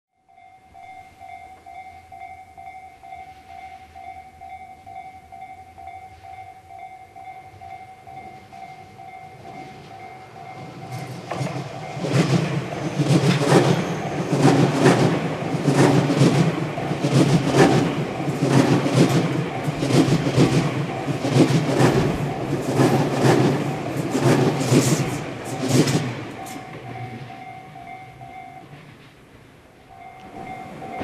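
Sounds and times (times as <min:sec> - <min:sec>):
wheels clacking on rails: 0:00.3 - 0:31.0
train cars rushing past: 0:07.2 - 0:31.0.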